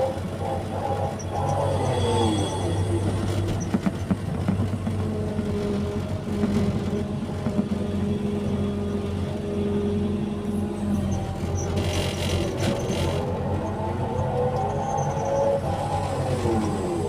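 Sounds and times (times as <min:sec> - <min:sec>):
steady higher tone: 0:00.0 - 0:05.1
excavator diesel engine running: 0:00.0 - 0:17.0.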